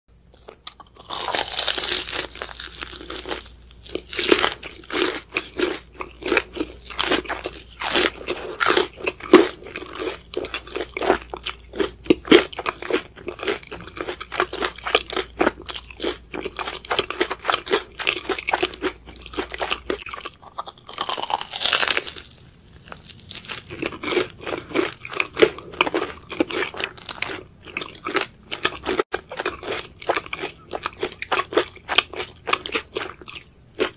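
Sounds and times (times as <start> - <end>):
crunching and chewing: 0.3 - 33.9.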